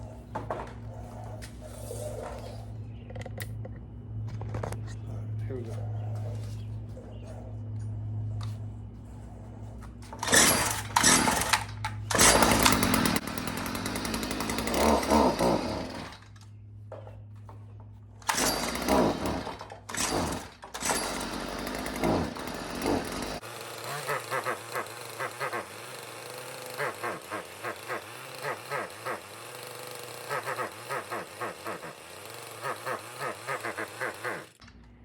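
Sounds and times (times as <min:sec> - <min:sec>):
string trimmer engine revving: 0:10.0 - 0:16.4, 0:18.2 - 0:34.7.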